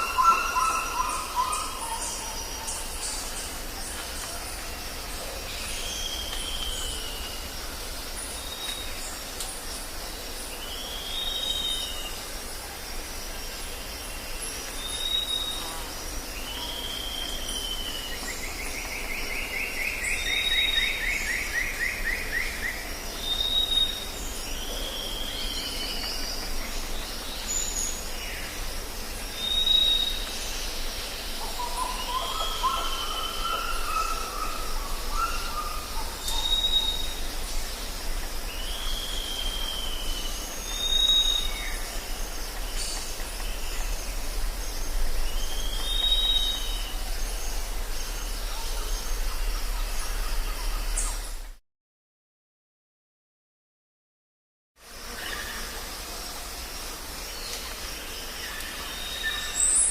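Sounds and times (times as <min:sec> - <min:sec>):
low wavering bird call: 0:00.0 - 0:02.6
steady background hiss: 0:00.0 - 0:51.6, 0:54.8 - 0:59.9.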